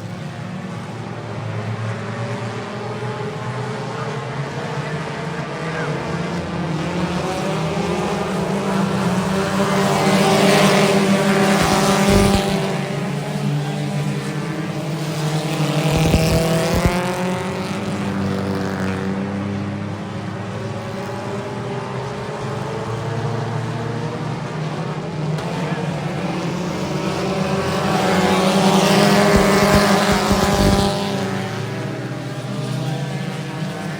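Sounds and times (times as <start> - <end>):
race car engines passing: 0.0 - 33.9.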